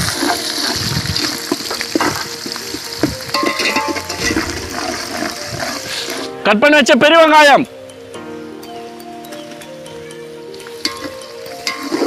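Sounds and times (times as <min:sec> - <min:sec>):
metal ladle scraping a pot: 0:00.0 - 0:06.4, 0:10.8 - 0:12.0
onions sizzling in a pot: 0:00.0 - 0:06.4, 0:09.9 - 0:12.0.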